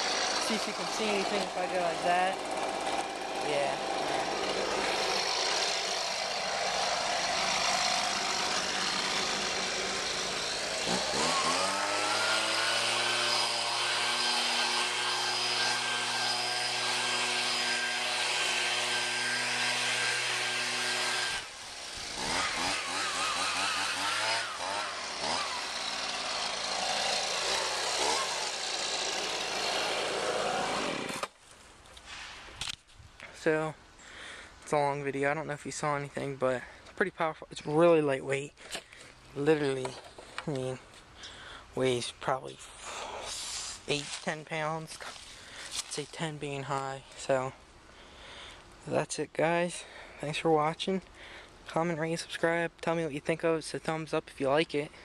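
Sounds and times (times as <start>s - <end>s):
leaf blower engine revving: 0.0s - 31.4s, 42.7s - 46.8s.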